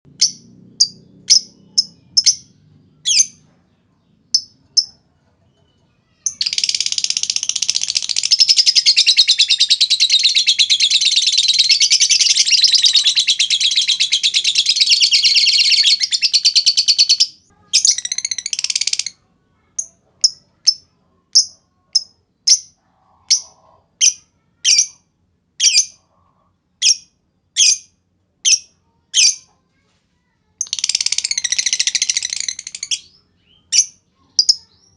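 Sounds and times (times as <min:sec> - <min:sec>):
lovebird chirping and trilling: 0:00.1 - 0:03.5, 0:04.2 - 0:05.0, 0:06.0 - 0:25.0, 0:25.6 - 0:26.0, 0:26.8 - 0:29.5, 0:30.6 - 0:34.9.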